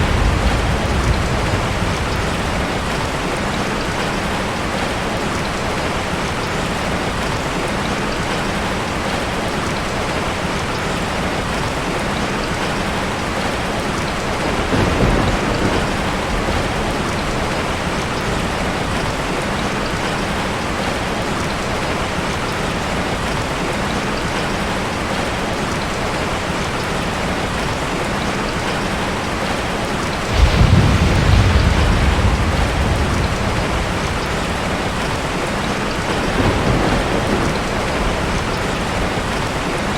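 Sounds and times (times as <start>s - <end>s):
thunder rumbling: 0.0s - 4.8s, 14.3s - 19.3s, 30.2s - 39.9s
heavy rain falling: 0.0s - 39.9s.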